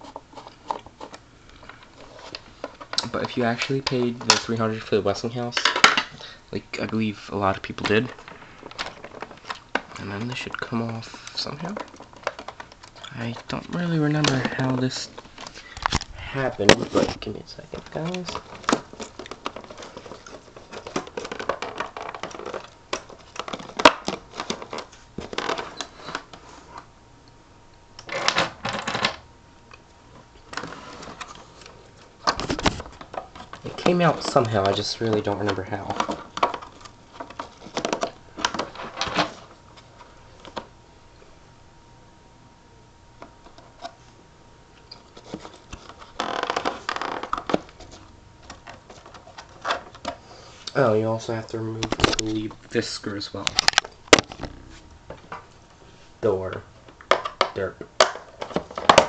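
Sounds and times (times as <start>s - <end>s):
plastic parts clicking and rattling: 5.4s - 6.2s, 6.8s - 26.4s, 28.0s - 29.2s, 30.5s - 40.7s, 44.9s - 50.2s, 51.3s - 55.4s, 56.4s - 59.0s
plastic parts clicking: 11.2s - 26.3s.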